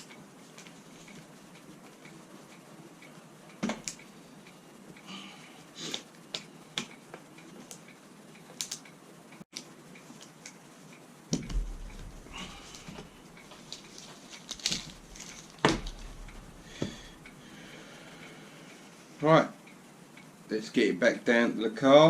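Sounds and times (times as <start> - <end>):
low hum: 11.3 - 18.7.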